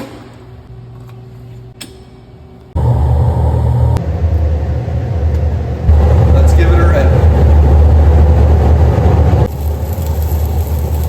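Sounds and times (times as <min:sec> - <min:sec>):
welding arc crackling: 0:05.8 - 0:11.0.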